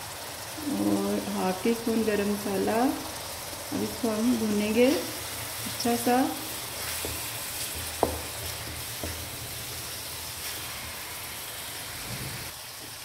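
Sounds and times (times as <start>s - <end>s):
masala sizzling in oil: 0.0s - 13.0s
spoon knocking on pan: 7.0s - 9.3s.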